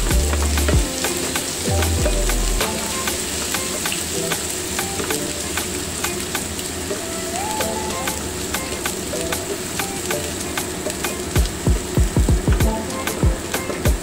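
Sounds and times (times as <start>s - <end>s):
garlic sizzling in oil: 0.0s - 11.4s.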